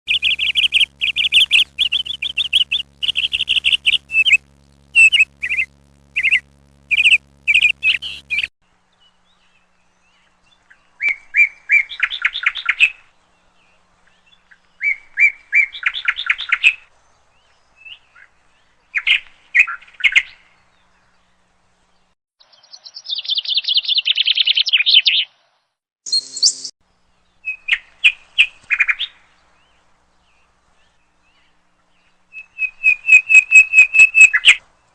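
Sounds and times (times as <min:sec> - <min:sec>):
bird chirping and trilling: 0:00.1 - 0:08.5, 0:22.5 - 0:25.3, 0:26.1 - 0:26.7, 0:32.3 - 0:34.6
steady low hum: 0:00.1 - 0:10.4.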